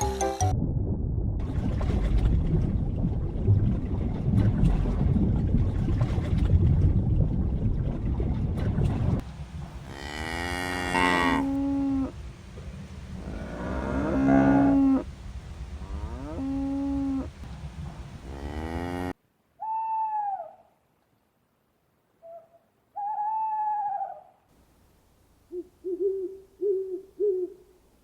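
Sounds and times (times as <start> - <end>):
cow mooing: 9.9 - 12.2, 13.2 - 15.0, 18.2 - 19.1
owl-like hoot: 19.6 - 20.7, 22.2 - 24.4, 25.5 - 27.7.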